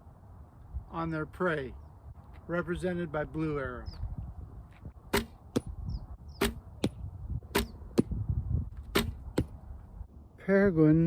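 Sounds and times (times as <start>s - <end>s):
bow shots: 5.1s - 5.7s, 6.4s - 8.2s, 8.8s - 9.6s
arrows hitting target: 5.1s - 5.8s, 6.4s - 8.2s, 8.8s - 9.6s.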